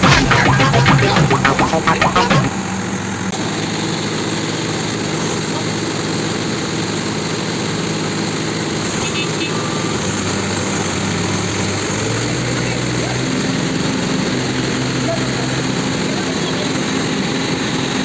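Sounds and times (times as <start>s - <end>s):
burst of music: 0.0s - 2.5s
tractor diesel engine running: 0.0s - 18.0s.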